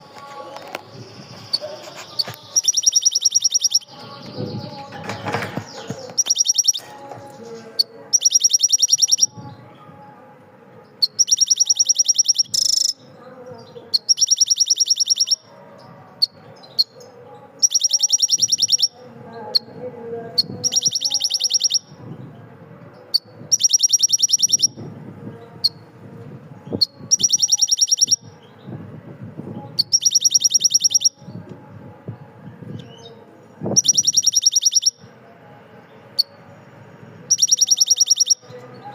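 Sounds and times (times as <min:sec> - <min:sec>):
faint mixed background sound: 0:00.0 - 0:38.9
bird high fast trill: 0:01.3 - 0:04.7, 0:05.7 - 0:06.9, 0:07.8 - 0:09.3, 0:11.0 - 0:13.0, 0:13.9 - 0:15.5, 0:17.6 - 0:19.7, 0:20.4 - 0:21.9, 0:23.1 - 0:24.8, 0:26.8 - 0:28.3, 0:29.8 - 0:31.2, 0:33.7 - 0:35.0, 0:37.3 - 0:38.5.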